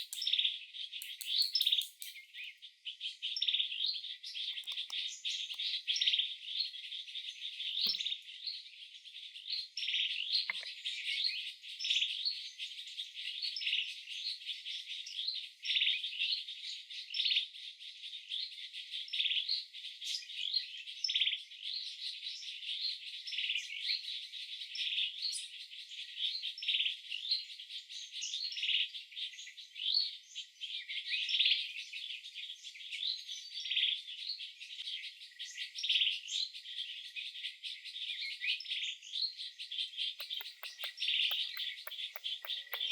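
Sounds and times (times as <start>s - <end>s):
birds chirping: 0.0s - 2.6s, 4.3s - 6.1s, 40.2s - 42.9s
insects trilling: 40.2s - 42.9s.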